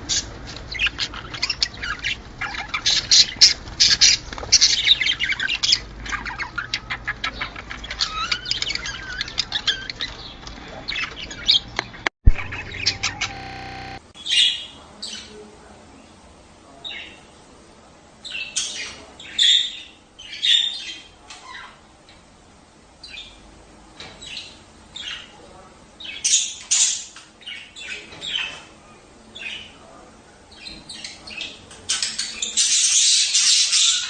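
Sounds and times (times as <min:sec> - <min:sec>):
budgerigars chattering and chirping: 0:00.1 - 0:14.0.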